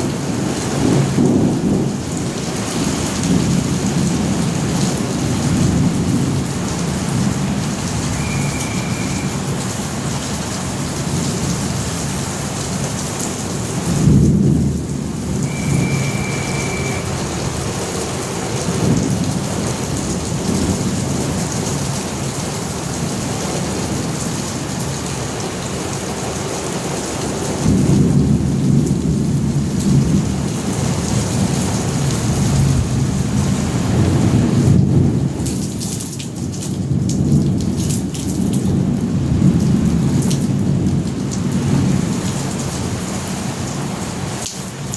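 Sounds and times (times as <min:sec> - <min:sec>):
rolling thunder: 0:00.0 - 0:25.0, 0:27.4 - 0:35.6
heavy rain: 0:00.0 - 0:44.9
high steady tone: 0:08.1 - 0:09.6, 0:15.4 - 0:17.7.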